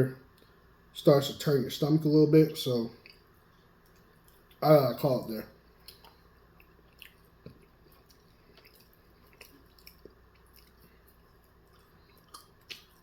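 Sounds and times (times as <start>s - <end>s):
person chewing: 3.0s - 4.6s, 5.7s - 13.0s.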